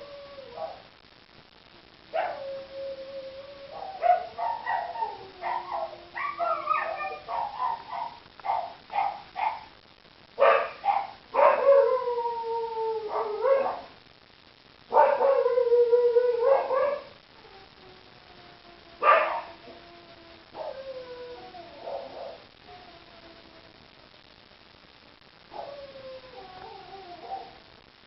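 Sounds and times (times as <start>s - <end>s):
dogs howling: 0.0s - 0.8s, 2.2s - 9.6s, 10.4s - 13.9s, 14.9s - 17.6s, 19.0s - 23.3s, 25.5s - 27.6s
dogs barking: 3.8s - 9.7s, 10.4s - 11.8s, 14.9s - 15.4s, 19.0s - 19.5s.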